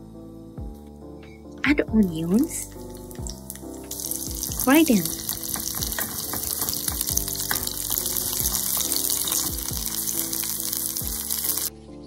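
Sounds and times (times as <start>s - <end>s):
background music: 0.0s - 12.0s
onions sizzling in oil: 2.1s - 11.7s
wooden spatula stirring: 3.1s - 11.7s.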